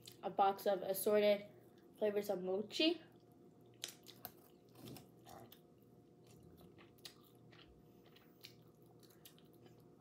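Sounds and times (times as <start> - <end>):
low room hum: 0.0 - 10.0
person chewing food: 3.1 - 10.0.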